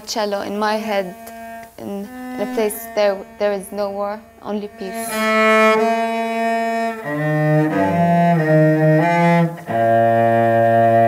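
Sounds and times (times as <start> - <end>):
cello bowed melody: 0.0 - 11.0.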